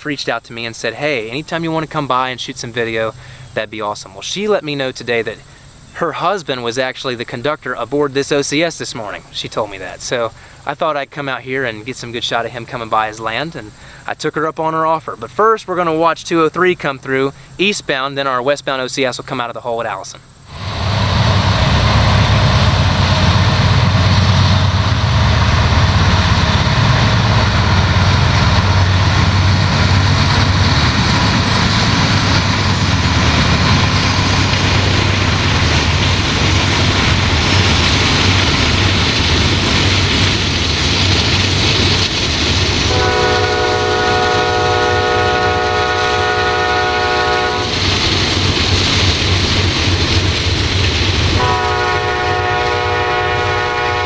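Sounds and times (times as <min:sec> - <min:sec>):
train rumbling past: 0:00.0 - 0:54.0
locomotive air horn chord: 0:20.5 - 0:32.8, 0:42.9 - 0:47.8, 0:51.4 - 0:54.0.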